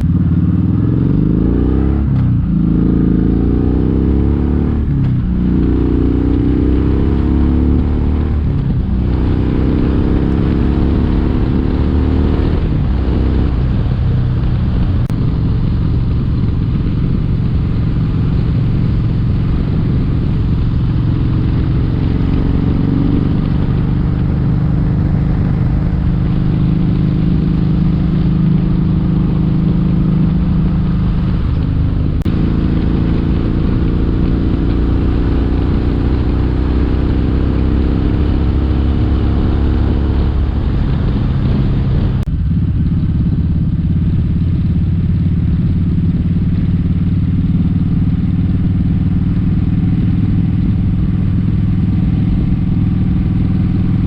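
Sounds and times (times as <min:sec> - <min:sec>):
motorcycle engine shifting gears: 0:00.0 - 0:54.0.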